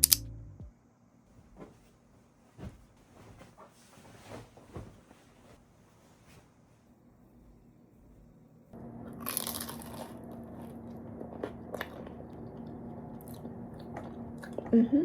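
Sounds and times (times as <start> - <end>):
steady low hum: 0.0 - 15.0
crackly crunch: 9.0 - 14.7.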